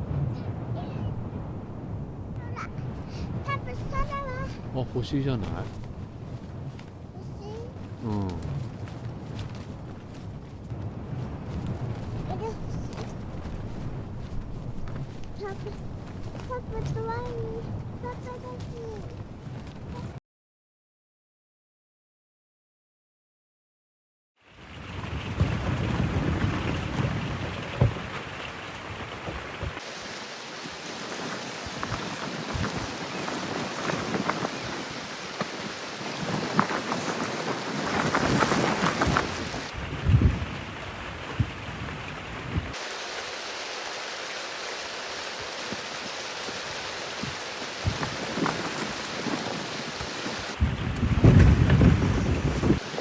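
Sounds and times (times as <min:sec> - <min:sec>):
rain hiss: 0:00.0 - 0:19.0, 0:24.5 - 0:53.0
water drips: 0:40.0 - 0:50.6.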